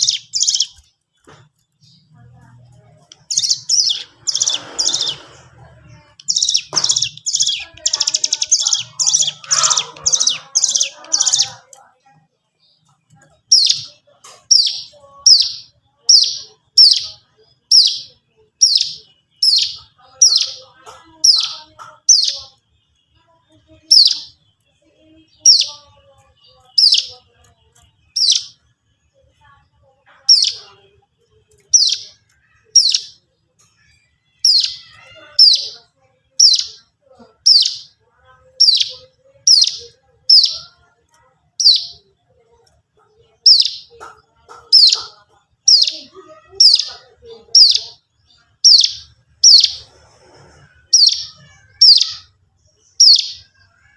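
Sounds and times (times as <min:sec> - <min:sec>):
bird song with descending notes: 0:00.0 - 0:00.9, 0:03.2 - 0:05.3, 0:14.5 - 0:20.6, 0:31.6 - 0:35.8.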